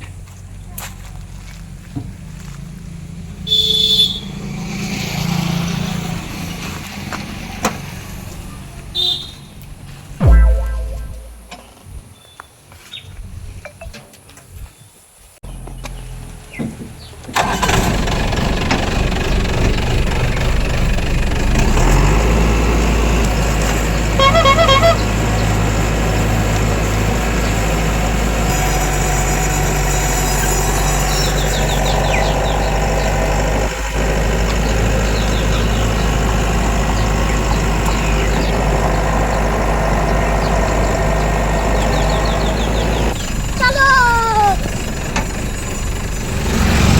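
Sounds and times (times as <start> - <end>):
pulsing high-pitched tone: 10.2 - 11.6
farm machine engine droning: 22.3 - 43.6.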